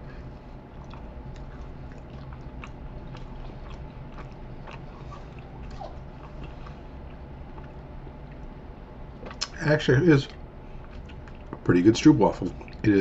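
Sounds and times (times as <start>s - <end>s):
person chewing crunchy wafer: 0.6s - 8.5s, 10.8s - 11.6s.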